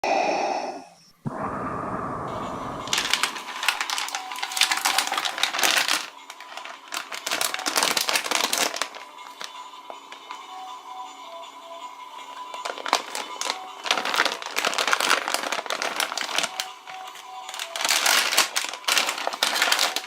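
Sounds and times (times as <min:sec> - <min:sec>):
wrapper packaging crinkling: 0:02.8 - 0:10.4, 0:12.4 - 0:20.0.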